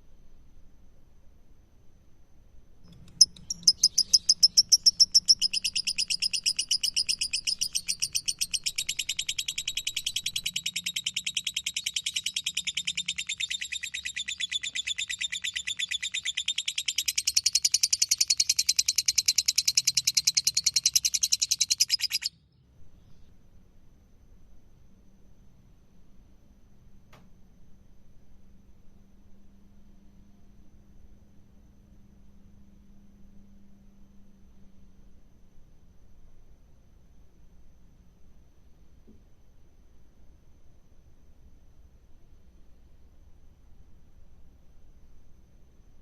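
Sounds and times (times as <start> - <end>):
bird chattering high chirps: 2.9 - 22.4.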